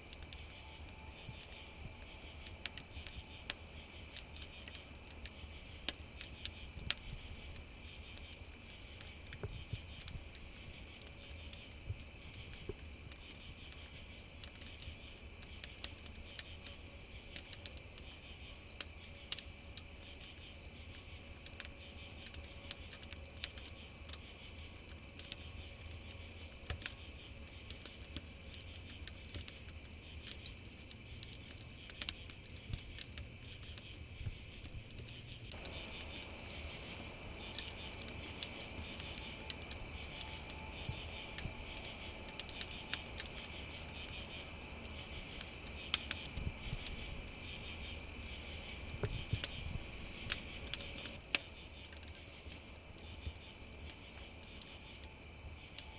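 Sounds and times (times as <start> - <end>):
campfire crackling and popping: 0.0 - 55.9
crickets chirring: 0.0 - 55.9.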